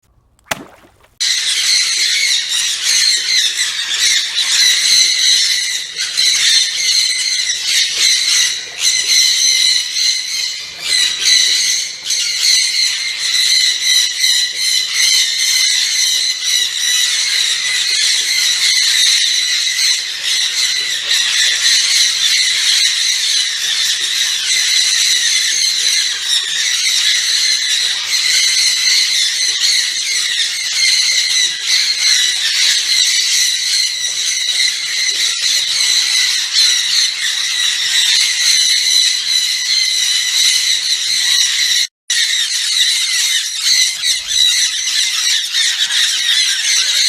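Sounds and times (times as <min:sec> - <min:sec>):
parrots screeching: 0:14.0 - 0:47.0.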